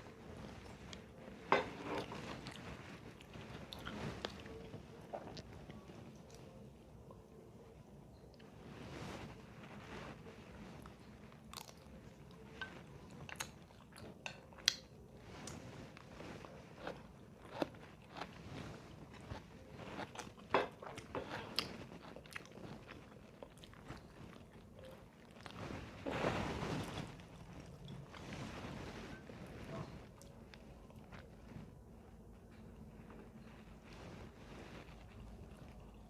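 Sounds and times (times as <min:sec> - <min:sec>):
person chewing crunchy food: 0:11.5 - 0:12.4, 0:15.5 - 0:25.6.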